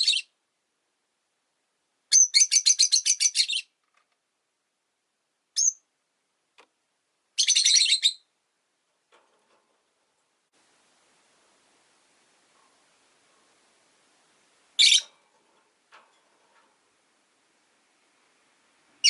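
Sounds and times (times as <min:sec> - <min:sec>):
lovebirds chirping: 0:02.1 - 0:03.8, 0:05.6 - 0:05.9, 0:07.4 - 0:08.3, 0:14.7 - 0:15.4.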